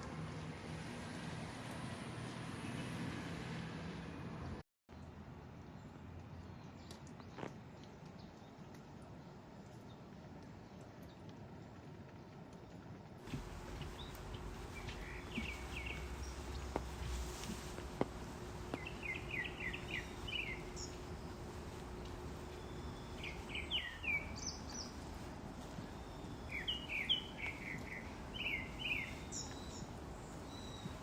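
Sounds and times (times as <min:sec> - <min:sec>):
faint steady hum: 0:13.2 - 0:31.0
small songbirds chirping: 0:13.3 - 0:31.0
steady background hiss: 0:13.3 - 0:31.0.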